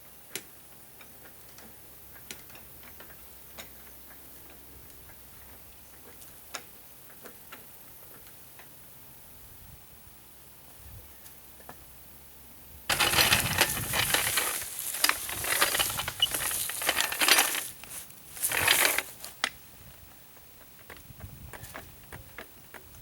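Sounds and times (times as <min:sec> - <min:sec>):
metal parts rattling and scraping: 0:12.9 - 0:19.4.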